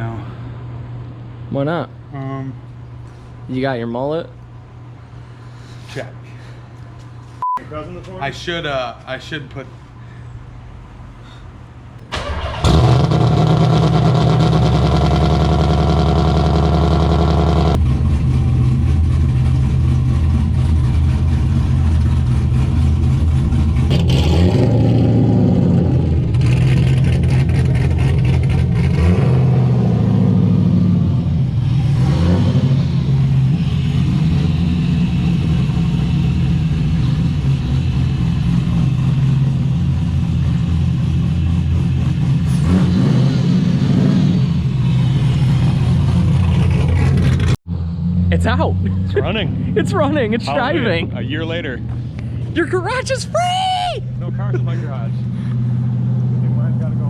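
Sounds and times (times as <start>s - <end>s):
car engine idling: 11.9s - 24.0s, 32.8s - 42.6s, 48.5s - 57.0s
engine cranking: 12.0s - 17.8s.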